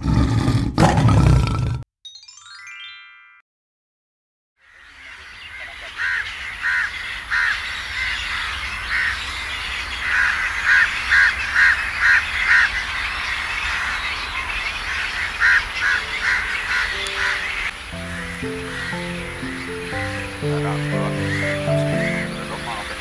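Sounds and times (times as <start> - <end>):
birds cawing: 4.6 - 23.0
outdoor background noise: 4.6 - 23.0
faint music: 15.8 - 23.0.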